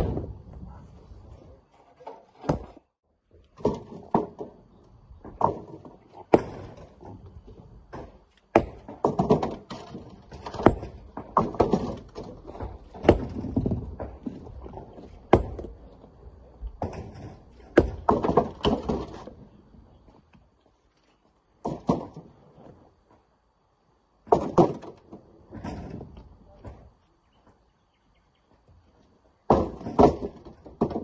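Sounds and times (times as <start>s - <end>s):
rocks knocking and thudding: 2.4s - 2.8s, 3.5s - 16.0s, 16.6s - 19.5s, 21.6s - 22.8s, 24.2s - 26.9s, 29.5s - 31.0s.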